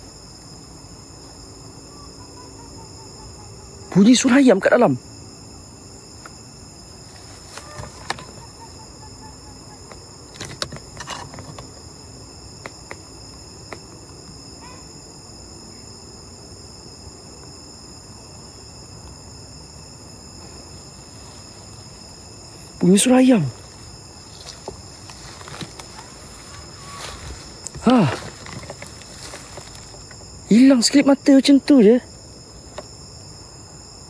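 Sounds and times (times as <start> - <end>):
night insects chirring: 0.0 - 34.0
steady hiss: 0.0 - 34.0
chicken calling: 1.9 - 4.0, 7.3 - 10.0, 25.3 - 29.8.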